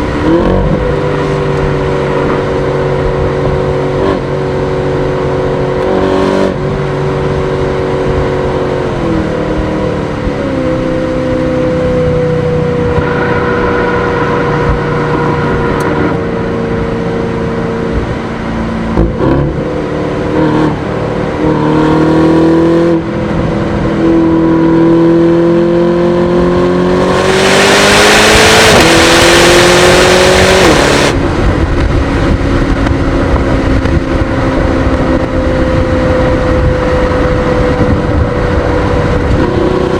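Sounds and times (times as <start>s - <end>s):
car engine accelerating: 0.0s - 39.9s
loud rushing noise: 11.7s - 39.9s.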